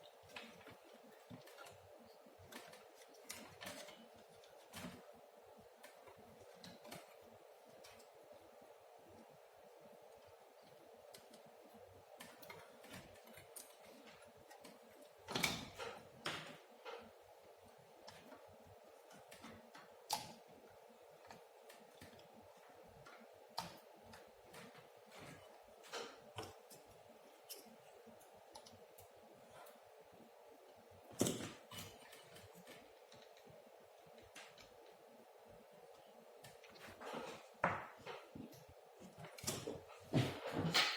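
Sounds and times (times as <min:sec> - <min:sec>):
small tools clicking and tapping: 0:00.0 - 0:05.1
faint steady hum: 0:00.0 - 0:40.9.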